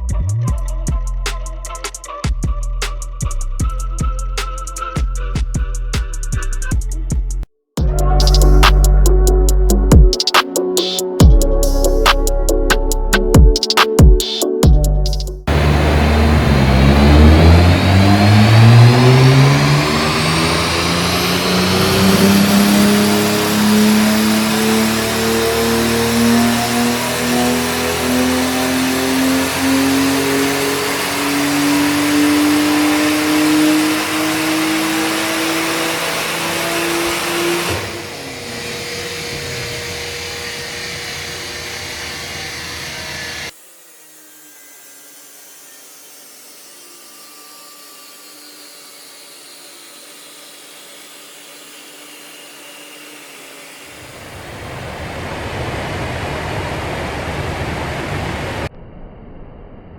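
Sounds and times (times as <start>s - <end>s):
turbo whistle: 0.4s - 6.1s, 7.8s - 15.4s
car engine revving at full throttle: 15.5s - 43.5s, 54.0s - 58.7s.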